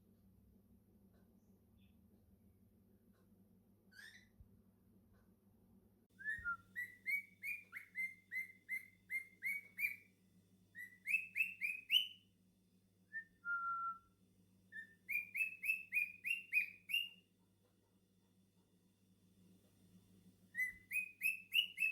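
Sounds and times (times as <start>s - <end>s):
cockatiel whistling: 6.2s - 10.1s, 10.8s - 12.2s, 14.7s - 17.2s, 20.6s - 21.9s.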